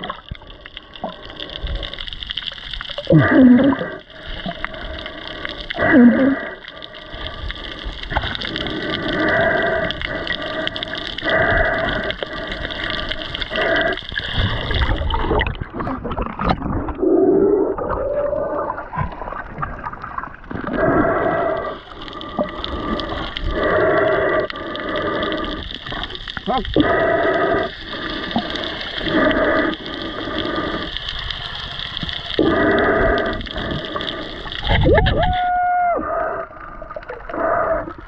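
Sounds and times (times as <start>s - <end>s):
underwater water rushing and gurgling: 0.0s - 38.0s.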